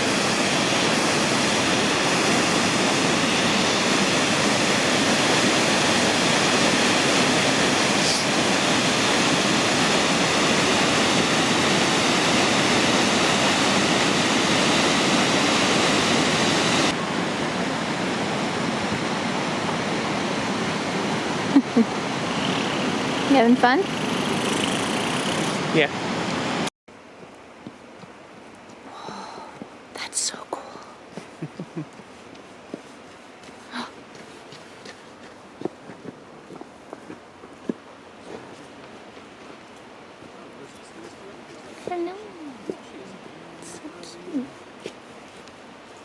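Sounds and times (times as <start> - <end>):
waterfall rushing: 0.0 - 26.7.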